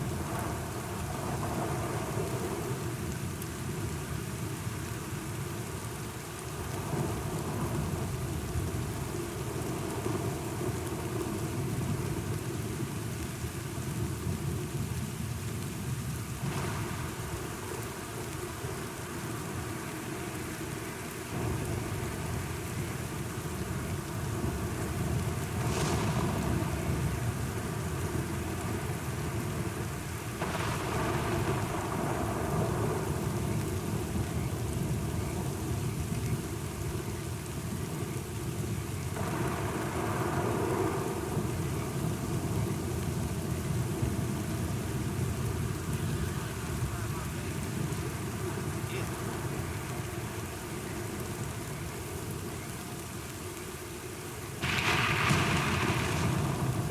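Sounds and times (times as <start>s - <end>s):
steady rain falling: 0.0s - 56.9s
thunder rumbling: 24.1s - 29.8s, 30.4s - 51.6s, 54.6s - 56.9s.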